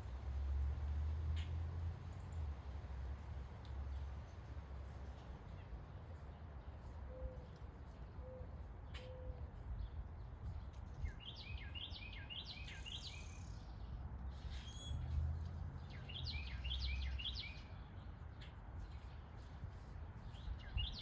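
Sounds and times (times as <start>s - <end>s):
songbird singing: 8.2s - 21.0s.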